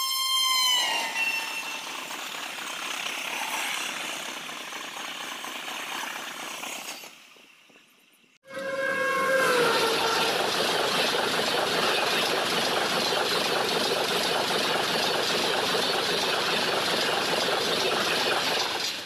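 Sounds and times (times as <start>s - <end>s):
train passing at speed: 8.5s - 19.0s.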